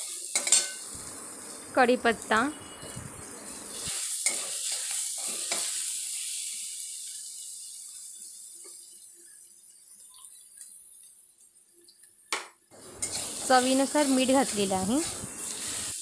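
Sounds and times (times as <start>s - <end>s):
paste sizzling in hot oil: 0.0s - 16.0s
spatula scraping pan: 12.8s - 16.0s.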